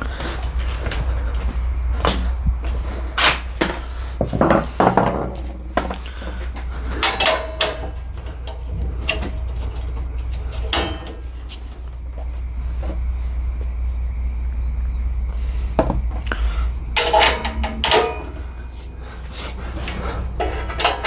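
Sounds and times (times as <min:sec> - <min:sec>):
steady low hum: 0:00.0 - 0:21.0
metal tools clanking: 0:00.8 - 0:01.5, 0:06.8 - 0:11.6, 0:17.0 - 0:21.0.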